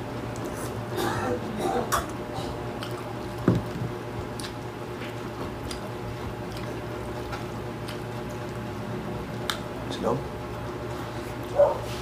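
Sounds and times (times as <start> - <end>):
steady low hum: 0.0 - 12.0
chewing: 1.9 - 3.4, 4.2 - 8.7.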